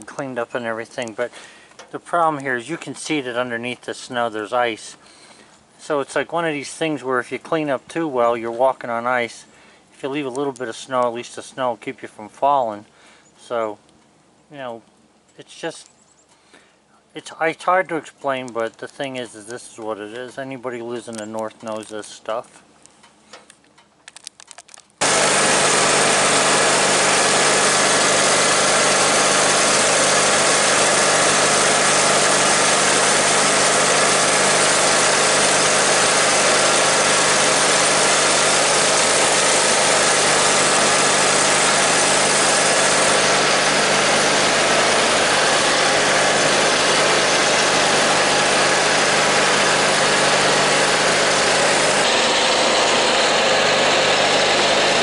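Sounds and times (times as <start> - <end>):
snow blower engine running: 25.0 - 55.0.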